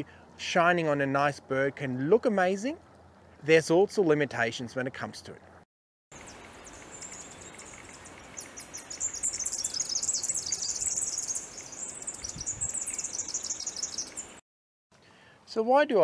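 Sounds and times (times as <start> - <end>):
bird singing rapid trill: 6.1 - 14.4
faint steady hiss: 6.2 - 14.4, 15.0 - 16.0.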